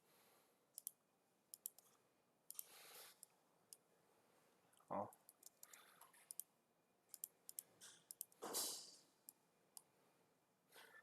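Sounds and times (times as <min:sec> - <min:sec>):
mouse and keyboard clicks: 0:00.8 - 0:03.8, 0:05.1 - 0:06.5, 0:07.1 - 0:08.4.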